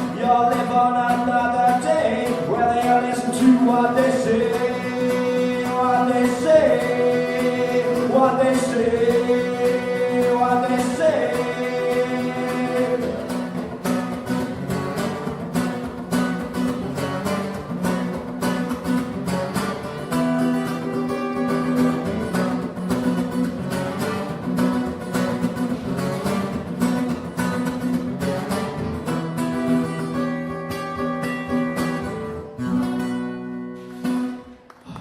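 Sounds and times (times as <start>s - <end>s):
acoustic guitar strumming: 0.0s - 34.9s.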